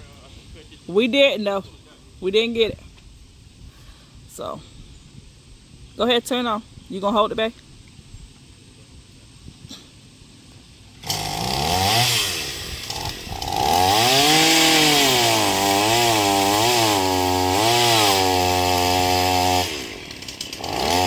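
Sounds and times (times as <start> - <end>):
chainsaw revving and cutting: 11.0 - 21.0.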